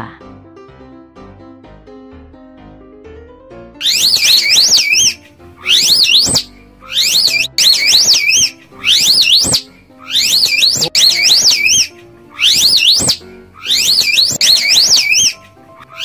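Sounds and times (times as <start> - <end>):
high-pitched warbling whistle: 3.8 - 16.0
quiet background music: 3.8 - 16.0.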